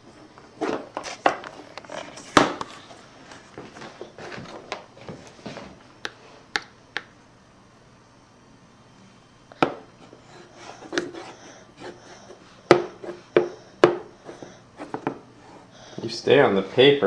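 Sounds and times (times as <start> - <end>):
crayon tapping on paper: 12.7 - 14.0.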